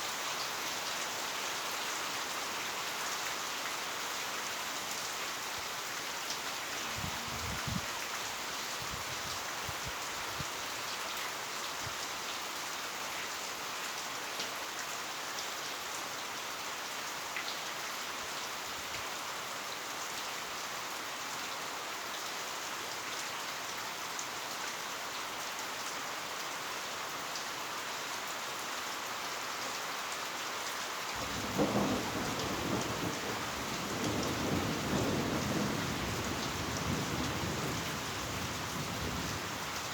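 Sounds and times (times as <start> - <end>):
heavy rain: 0.0 - 39.9
thunder rumbling: 31.2 - 39.6.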